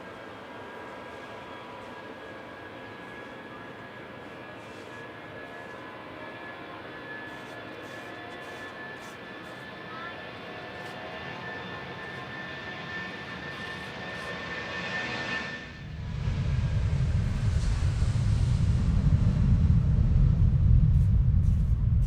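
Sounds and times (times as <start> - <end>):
jet engine whine: 0.0 - 22.0
loud low jet rumble: 15.0 - 22.0.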